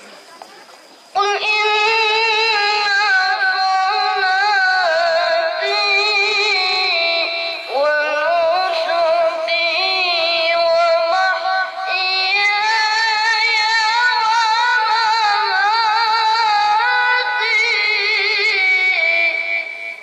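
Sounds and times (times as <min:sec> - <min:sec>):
child reciting melodically: 0:00.5 - 0:20.0.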